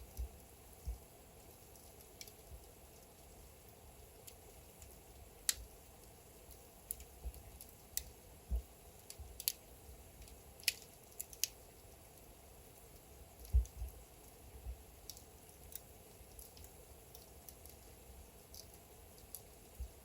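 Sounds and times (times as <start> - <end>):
faint steady hiss: 0.0 - 20.0
wood fire crackling: 0.0 - 20.0
soft low thuds: 13.5 - 13.9.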